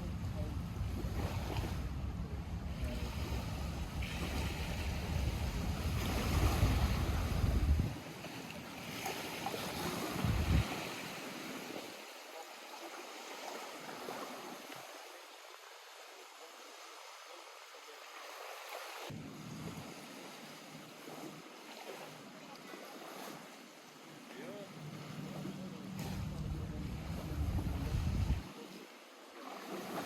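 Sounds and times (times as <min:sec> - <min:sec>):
water lapping at shore: 0:00.0 - 0:30.0
strong low rumble: 0:01.7 - 0:07.9, 0:26.0 - 0:28.4.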